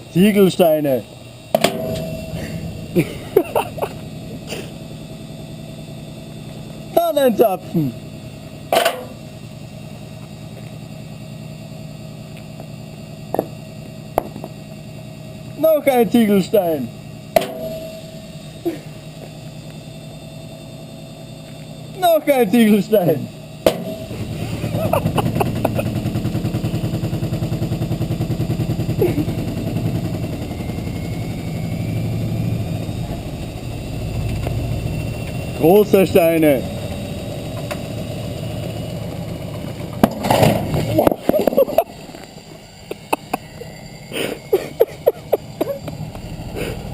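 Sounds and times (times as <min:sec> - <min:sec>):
washing machine motor hum: 0:00.0 - 0:12.1, 0:22.0 - 0:46.9.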